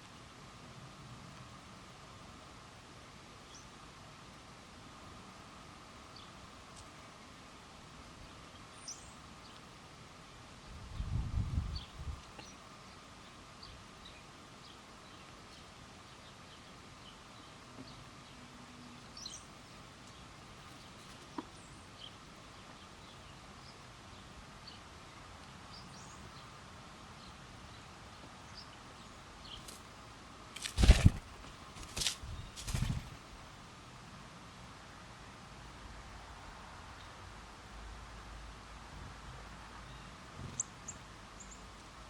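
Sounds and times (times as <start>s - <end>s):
small birds chirping: 8.5s - 9.7s, 25.7s - 26.6s, 27.2s - 29.9s, 30.6s - 33.4s, 39.8s - 41.8s
loud noisy rustling bursts: 30.6s - 33.4s.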